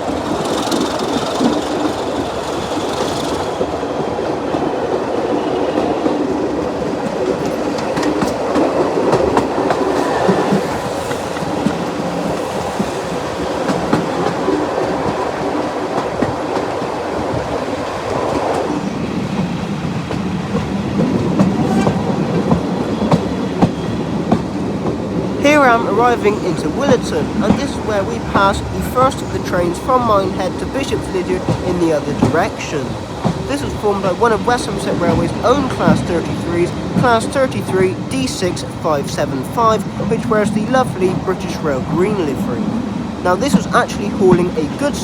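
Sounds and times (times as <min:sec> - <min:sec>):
clickety-clack over rail joints: 0:00.0 - 0:45.0
train wheels rolling on track: 0:00.0 - 0:45.0.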